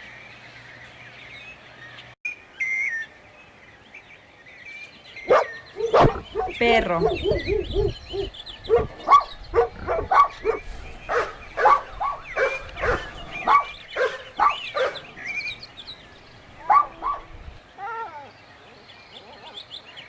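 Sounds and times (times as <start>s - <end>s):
dog barking: 5.3s - 15.1s, 16.6s - 17.3s.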